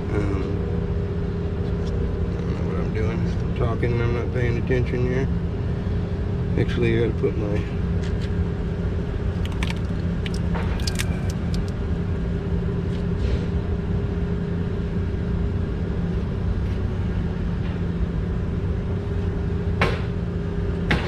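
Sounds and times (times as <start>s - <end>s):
small parts clicking and tapping: 9.4s - 11.7s.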